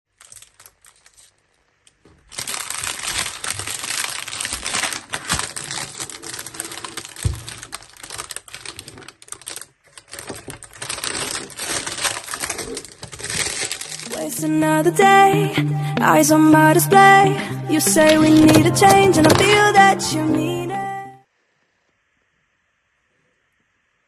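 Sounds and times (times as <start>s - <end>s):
packaging clicks: 0.1s - 14.4s, 17.9s - 19.6s
packaging crackling and rustling: 0.1s - 14.4s, 18.0s - 19.6s.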